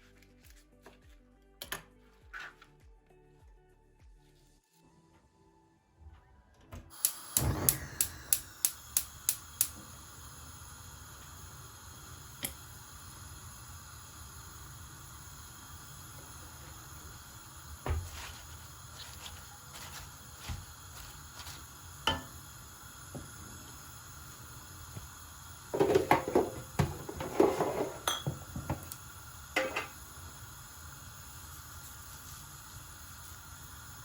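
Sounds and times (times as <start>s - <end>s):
dishes and cutlery clinking: 27.2s - 28.5s, 29.6s - 29.9s.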